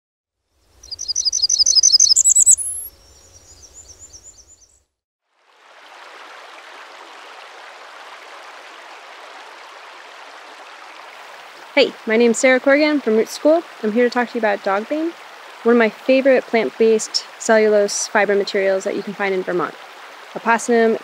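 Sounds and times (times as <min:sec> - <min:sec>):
bird chirps: 0:00.8 - 0:04.8
songbird trilling: 0:00.8 - 0:04.8.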